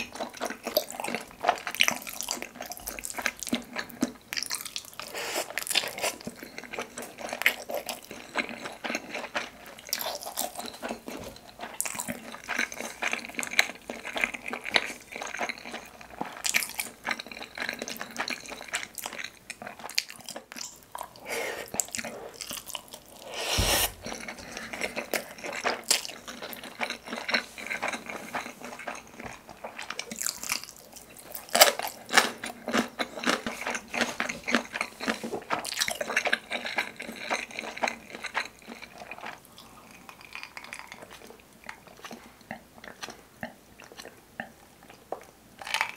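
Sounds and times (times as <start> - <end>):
wet sticky chewing sounds: 0.0 - 45.9.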